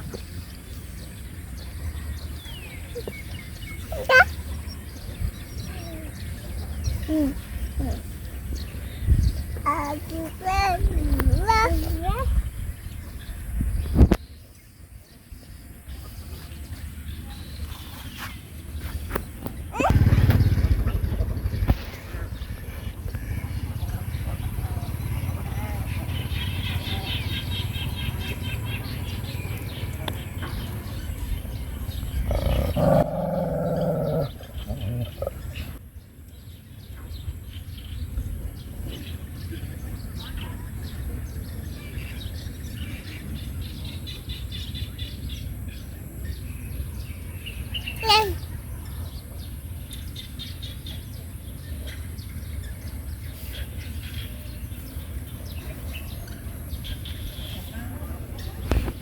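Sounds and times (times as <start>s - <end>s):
low background rumble: 18.7s - 35.8s
dog growling and snarling: 31.6s - 35.8s.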